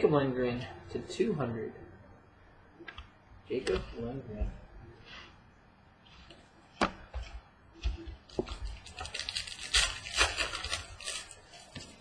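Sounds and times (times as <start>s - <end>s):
crinkly wrapper rustling: 8.3s - 12.0s.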